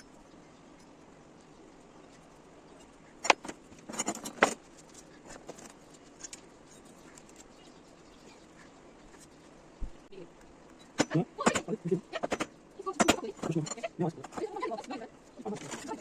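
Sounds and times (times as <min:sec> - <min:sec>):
metallic clinks of vise parts: 0:03.2 - 0:04.6.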